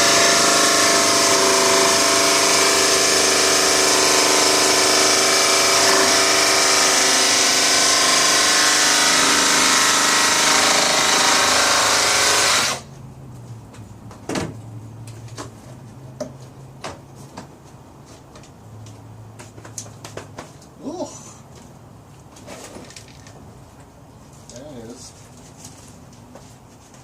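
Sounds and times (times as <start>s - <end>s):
power tool motor cutting: 0.0s - 12.8s.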